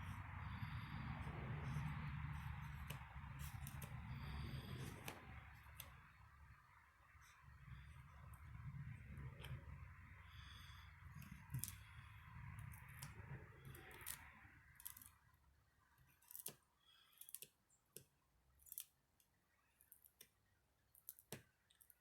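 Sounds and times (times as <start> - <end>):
low hum: 0.0 - 14.8.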